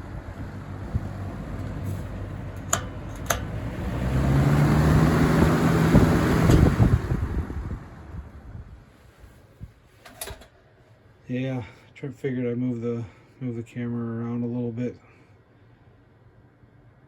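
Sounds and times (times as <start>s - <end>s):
box fan rushing air: 0.0s - 11.1s.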